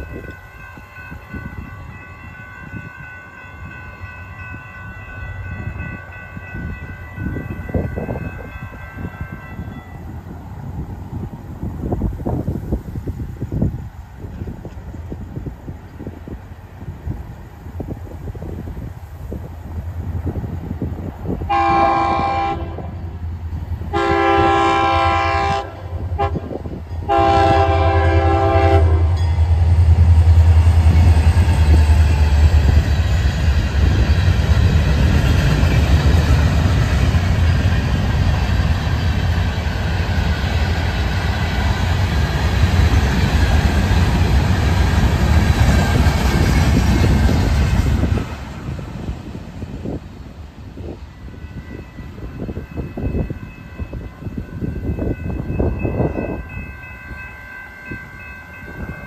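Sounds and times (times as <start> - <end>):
freight train rumbling past: 0.0 - 59.0
train horn chord blasts: 21.5 - 23.2, 23.9 - 29.5.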